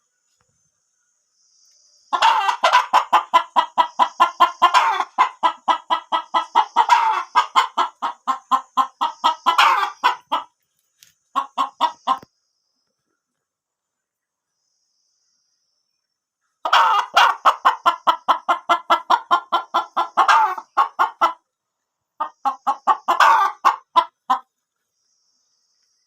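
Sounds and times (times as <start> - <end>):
chicken clucking: 2.1 - 10.6, 11.2 - 12.3, 16.6 - 21.6, 22.2 - 24.6.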